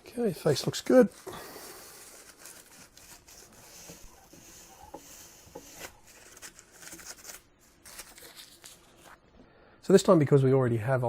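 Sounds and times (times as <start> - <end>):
faint handwork scraping and rustling: 0.4 - 9.2.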